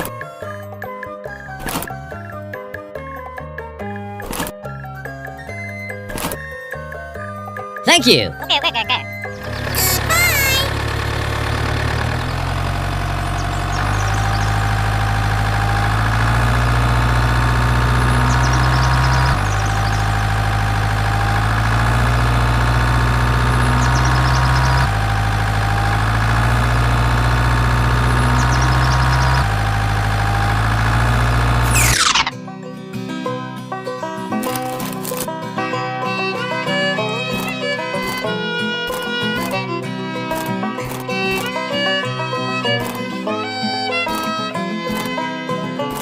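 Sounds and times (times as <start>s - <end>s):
heavy engine revving: 9.3s - 32.3s.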